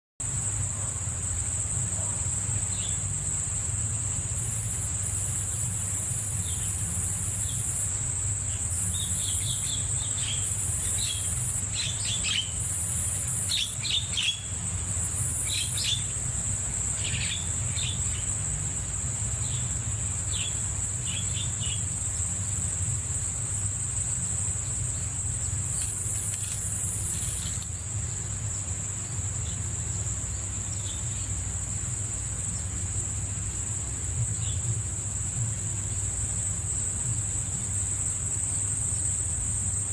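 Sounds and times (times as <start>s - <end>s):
crickets trilling: 0.2s - 39.9s
higher insect trill: 0.2s - 39.9s
bird chirping: 8.5s - 16.2s, 17.0s - 18.5s.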